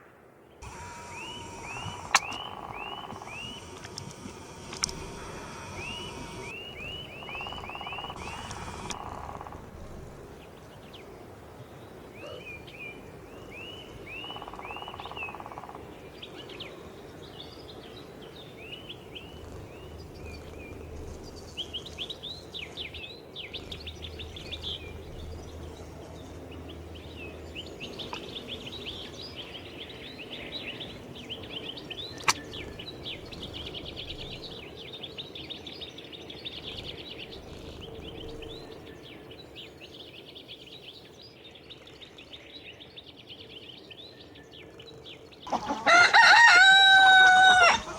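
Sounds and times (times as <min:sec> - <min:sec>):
songbirds chirping and trilling: 0:00.5 - 0:47.9
sharp click: 0:01.1 - 0:05.1, 0:32.2 - 0:32.4.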